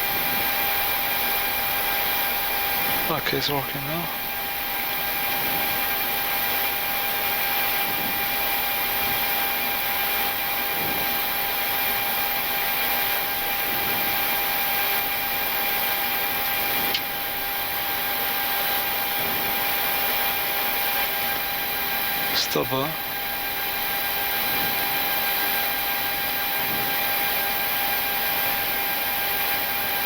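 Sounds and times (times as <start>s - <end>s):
jet engines idling rushing hiss: 0.1s - 8.2s.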